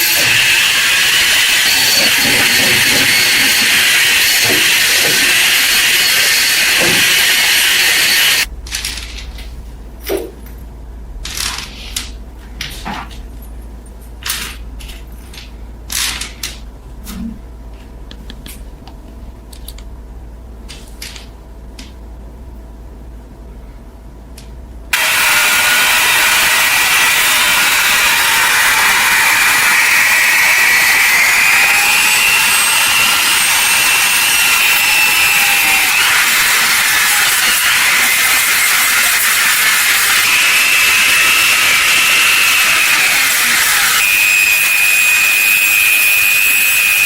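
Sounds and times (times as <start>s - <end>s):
hissing power tool: 0.0s - 8.5s, 24.9s - 47.0s.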